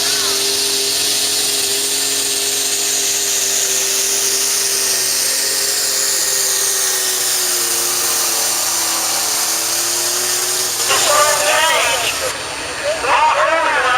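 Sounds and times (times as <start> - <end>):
tractor engine screaming at full throttle: 0.0 - 13.9.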